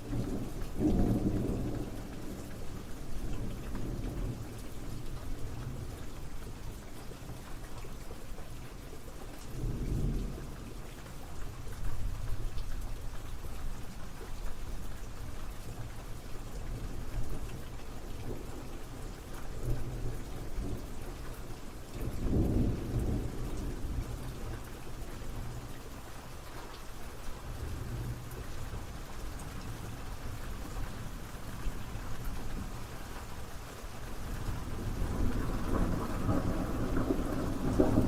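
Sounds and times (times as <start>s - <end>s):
rain falling: 0.0s - 38.0s
thunder rumbling: 34.4s - 38.0s.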